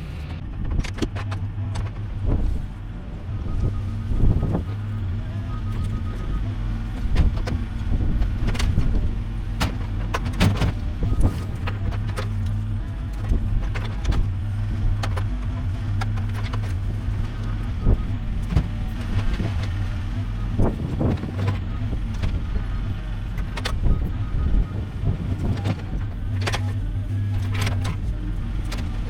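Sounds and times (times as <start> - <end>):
excavator engine running: 0.0 - 29.0.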